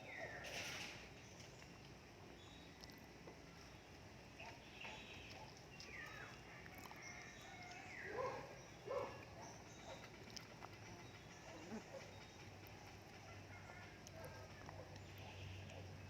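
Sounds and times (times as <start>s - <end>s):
puppies whimpering: 11.5s - 12.1s.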